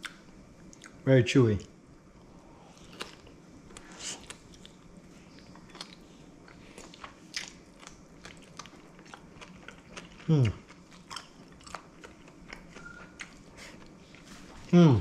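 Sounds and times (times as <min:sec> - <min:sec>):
person chewing: 0:02.6 - 0:14.7.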